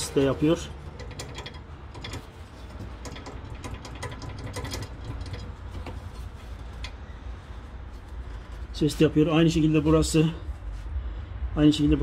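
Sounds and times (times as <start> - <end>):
metal bolt clicking and knocking: 0.0 - 7.0.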